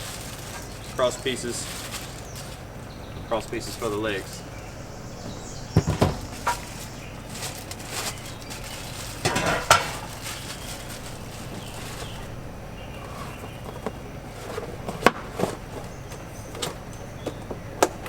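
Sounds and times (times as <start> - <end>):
rustling: 0.0 - 17.1
metal grill parts clinking: 5.8 - 17.0.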